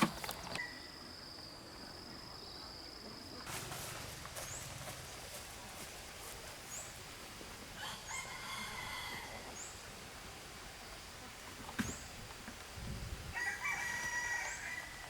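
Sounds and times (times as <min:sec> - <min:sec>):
faint steady hiss: 0:00.0 - 0:15.0
rooster crowing: 0:07.8 - 0:09.5, 0:13.3 - 0:15.0.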